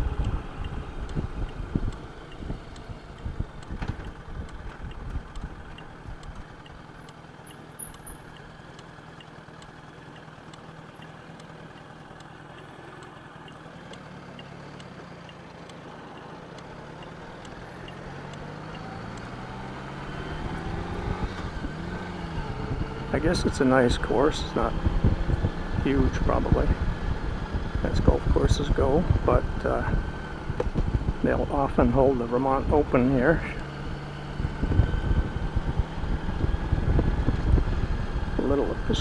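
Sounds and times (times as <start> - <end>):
wind buffeting microphone: 0.0 - 6.3, 24.2 - 32.8, 33.7 - 39.0
motorcycle engine running: 0.0 - 39.0.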